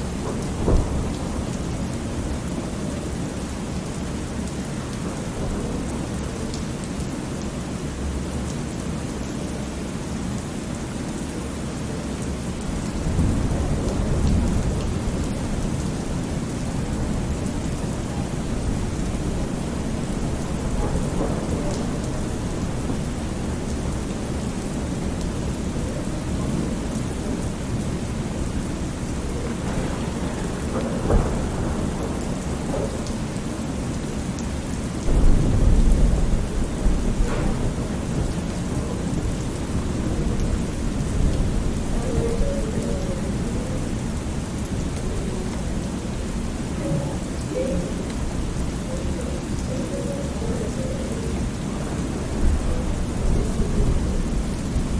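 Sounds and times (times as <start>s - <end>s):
rolling thunder: 0.0s - 3.8s, 12.6s - 54.9s
steady rain: 0.0s - 54.9s
sharp thunder crack: 28.5s - 32.7s, 35.1s - 39.6s.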